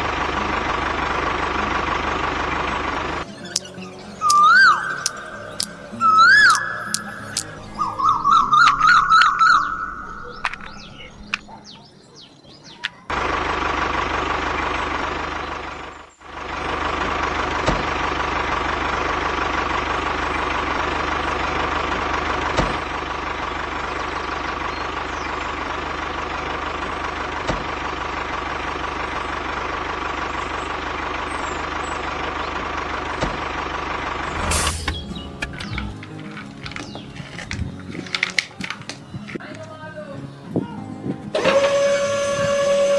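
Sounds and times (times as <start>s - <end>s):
warbling whistle-like chirps: 3.1s - 11.3s.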